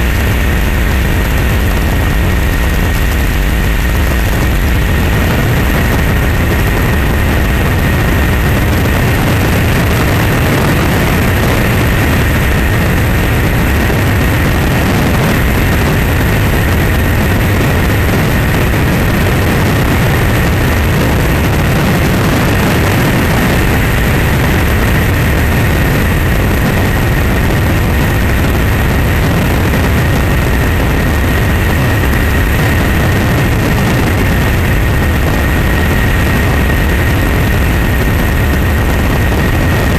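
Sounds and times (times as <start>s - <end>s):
engine running with high whine: 0.0s - 39.9s.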